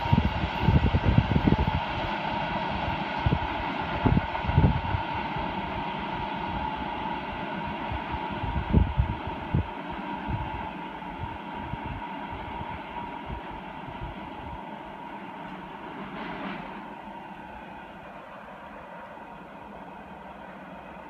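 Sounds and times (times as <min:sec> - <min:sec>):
wind thumps on microphone: 0:00.0 - 0:02.1, 0:02.8 - 0:05.2, 0:07.9 - 0:10.6
freight train rumble: 0:00.0 - 0:21.0
high hum from rails: 0:00.0 - 0:21.0.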